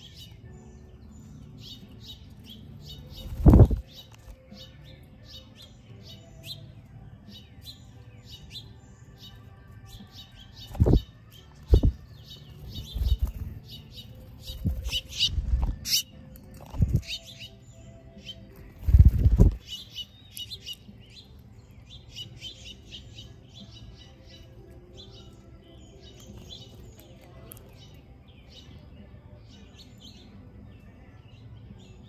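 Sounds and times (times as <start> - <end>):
small birds chirping: 0.0 - 32.0
bird wings fluttering: 3.2 - 3.9, 12.8 - 13.6, 18.7 - 19.6.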